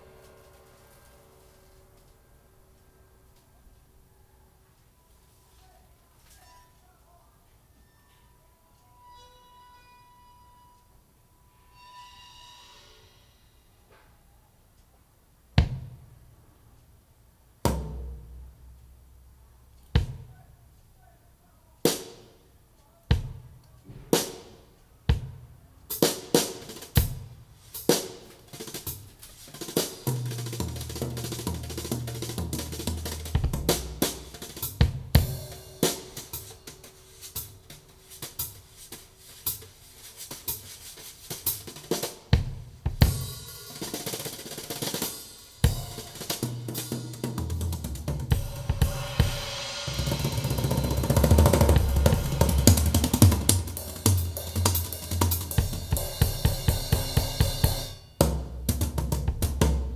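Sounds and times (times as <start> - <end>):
drum track through speaker: 15.6 - 16.3, 17.7 - 20.8, 21.8 - 59.9.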